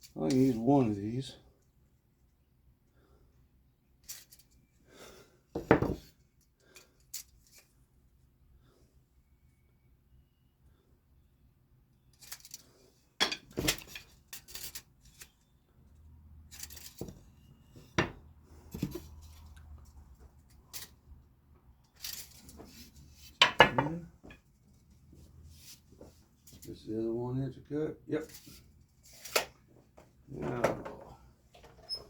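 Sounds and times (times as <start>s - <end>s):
wooden pieces knocking on workbench: 5.6s - 6.0s, 23.4s - 24.4s.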